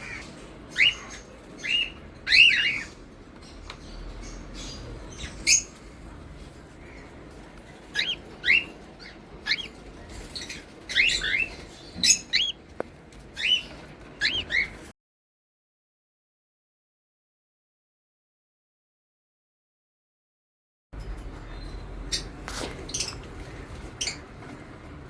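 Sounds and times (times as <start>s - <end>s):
parrots chirping: 0.0s - 14.9s, 21.1s - 25.0s.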